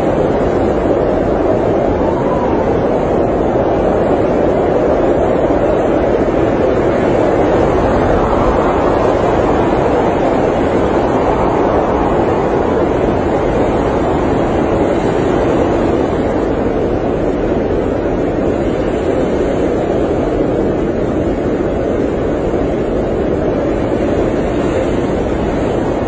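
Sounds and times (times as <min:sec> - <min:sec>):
blizzard wind blowing: 0:00.0 - 0:26.0
low rumble: 0:06.9 - 0:14.5.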